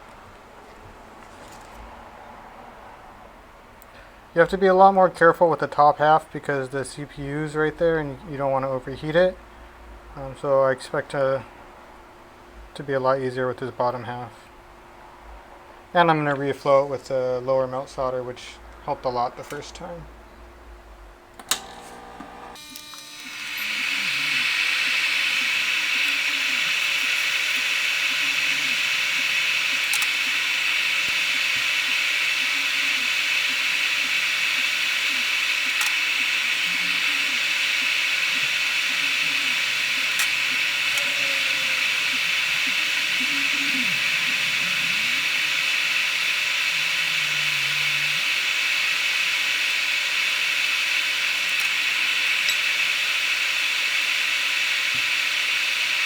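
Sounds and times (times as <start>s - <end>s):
hot air hissing: 21.5s - 56.0s.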